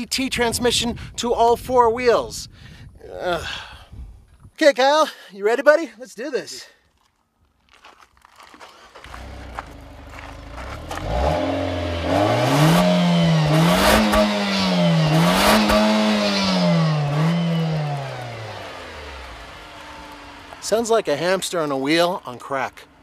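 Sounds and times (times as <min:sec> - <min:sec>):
car engine revving: 0:09.0 - 0:22.4.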